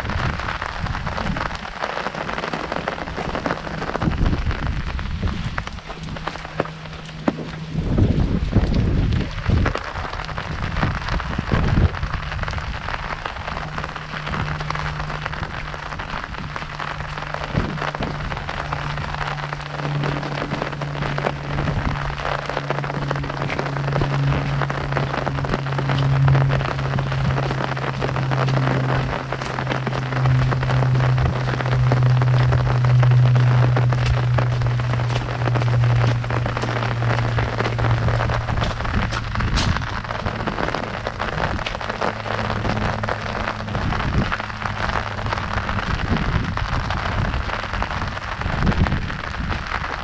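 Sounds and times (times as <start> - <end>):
low hum: 0.0 - 50.0
low thumps: 0.0 - 50.0
rain pattering on umbrella: 0.0 - 50.0.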